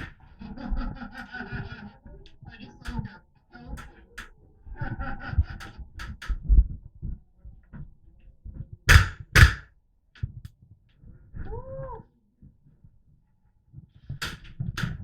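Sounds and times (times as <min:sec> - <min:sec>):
loud airsoft shots: 0:08.9 - 0:09.6.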